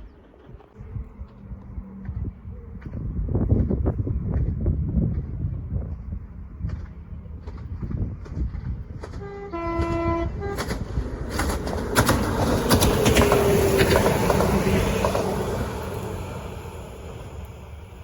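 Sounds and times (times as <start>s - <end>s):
train passing rumble: 0.0s - 18.0s
train horn: 9.1s - 11.5s.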